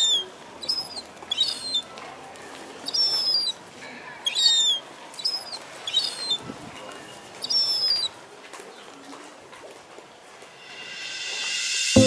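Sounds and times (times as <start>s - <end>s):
birds shrill high-pitched calls: 0.0s - 1.9s, 2.8s - 3.6s, 4.2s - 6.4s, 7.4s - 8.2s.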